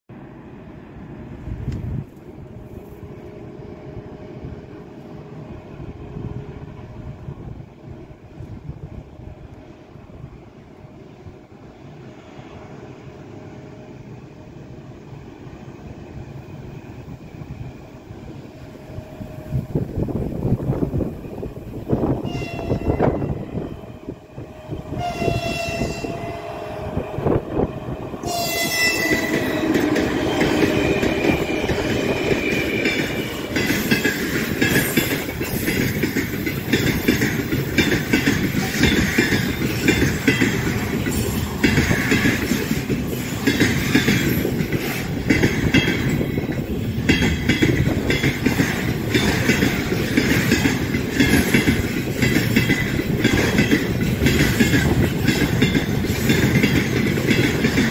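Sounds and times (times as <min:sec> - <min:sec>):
freight train rumbling past: 0:00.1 - 0:57.9
locomotive horn: 0:22.2 - 0:31.8
wheels clickety-clack: 0:29.1 - 0:57.9.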